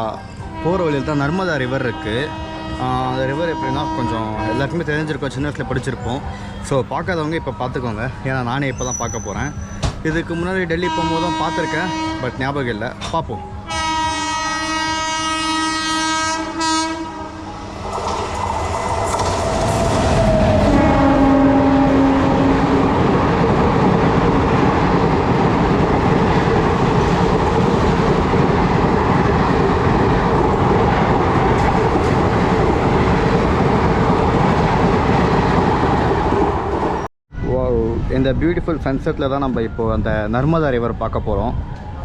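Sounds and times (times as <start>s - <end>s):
train horn: 0.4s - 5.0s, 10.7s - 12.6s, 13.6s - 17.8s, 19.1s - 22.9s
train wheels rumbling on track: 16.4s - 37.1s.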